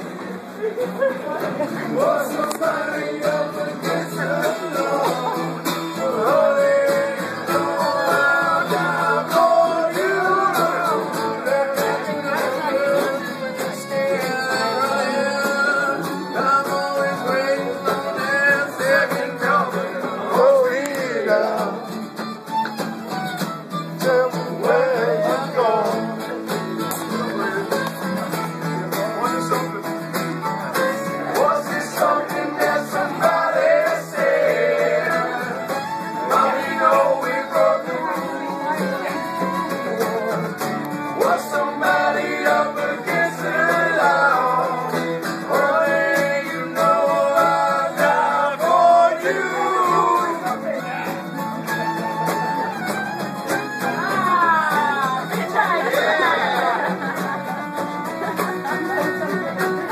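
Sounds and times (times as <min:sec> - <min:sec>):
bluegrass string band playing: 0:00.0 - 0:59.9
plucked guitar: 0:00.0 - 0:59.9
person singing: 0:01.6 - 0:22.2, 0:23.8 - 0:26.4, 0:30.7 - 0:50.6.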